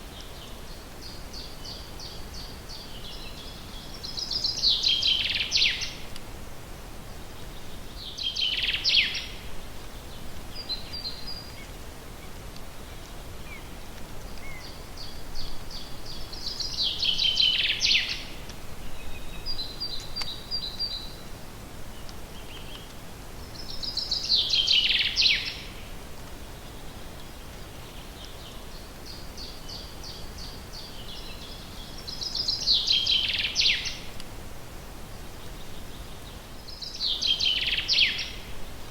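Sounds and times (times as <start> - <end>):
songbird singing: 0.0 - 6.2, 7.1 - 34.3, 34.9 - 38.9
steady background hiss: 0.0 - 38.9.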